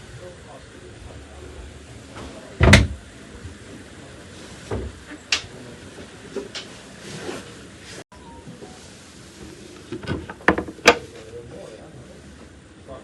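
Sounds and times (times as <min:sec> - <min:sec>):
steady background hum: 0:00.0 - 0:13.0
loud thump: 0:02.6 - 0:03.0.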